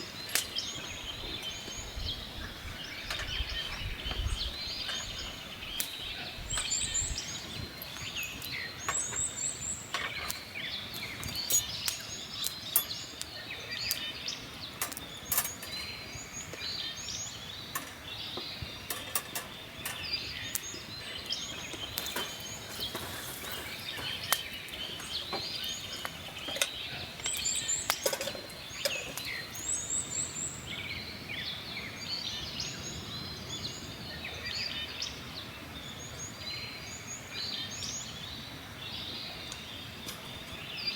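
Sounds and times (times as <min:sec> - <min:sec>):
birds chirping and calling: 0:00.0 - 0:40.9
campfire crackling and popping: 0:04.1 - 0:30.5.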